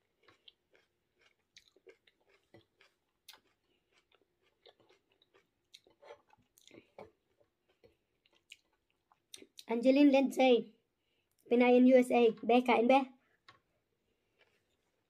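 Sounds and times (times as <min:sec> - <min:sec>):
faint chewing: 0:00.0 - 0:09.7, 0:13.2 - 0:15.0.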